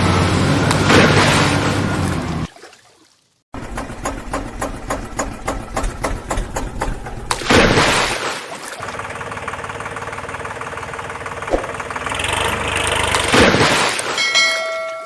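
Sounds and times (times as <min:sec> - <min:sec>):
engine pulsing: 0:08.9 - 0:13.3.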